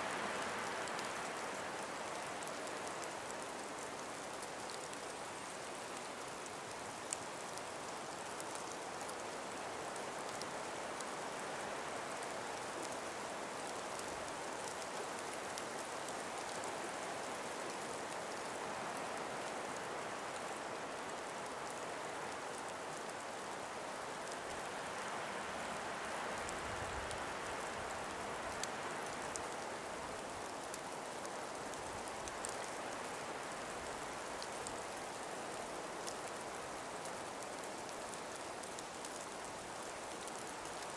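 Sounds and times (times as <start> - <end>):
breeze through forest: 0.0 - 40.9
faint ticks: 26.0 - 40.9.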